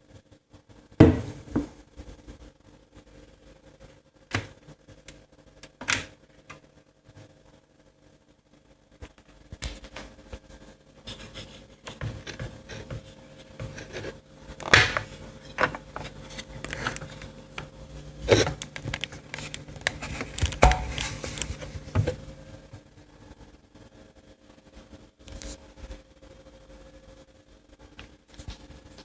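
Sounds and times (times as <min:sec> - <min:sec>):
objects knocking and clattering: 0:20.0 - 0:22.2.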